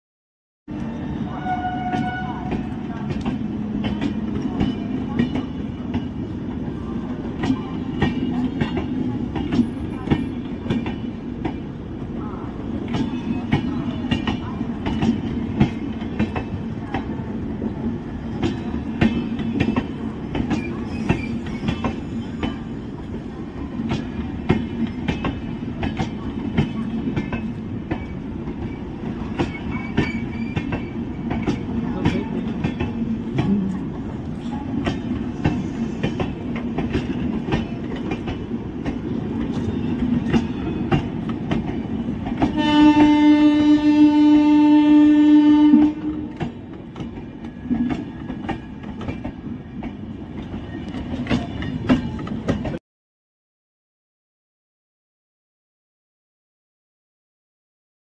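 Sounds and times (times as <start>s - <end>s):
steel wheels rumbling on rails: 0.9s - 52.8s
high wheel squeaks: 20.5s - 22.6s, 29.4s - 31.2s.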